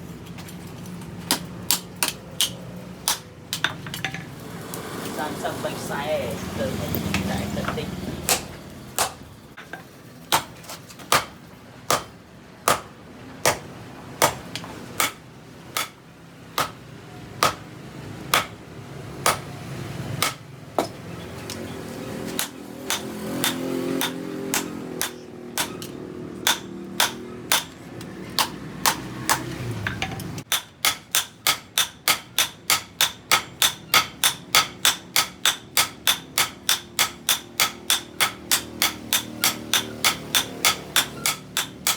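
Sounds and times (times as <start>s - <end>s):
hammer striking steel on anvil: 14.2s - 16.0s, 16.6s - 16.8s, 17.4s - 17.6s, 18.3s - 18.6s, 19.2s - 19.5s, 20.2s - 21.0s, 22.4s - 41.9s.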